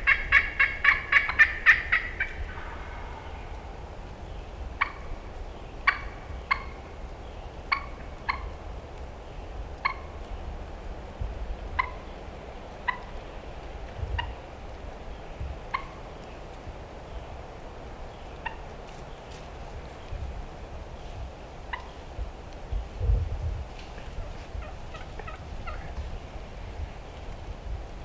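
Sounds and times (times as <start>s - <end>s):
turkey clucking: 0.0s - 3.5s, 4.8s - 5.1s, 5.8s - 6.8s, 7.7s - 8.5s, 21.7s - 21.9s, 24.1s - 26.0s
low wind rumble: 0.0s - 28.0s.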